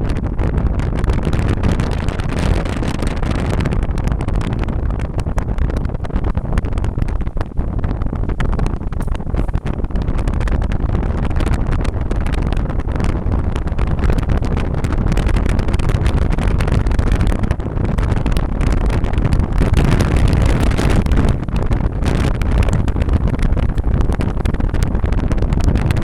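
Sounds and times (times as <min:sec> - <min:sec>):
vehicle engine and road noise: 0:00.0 - 0:26.0.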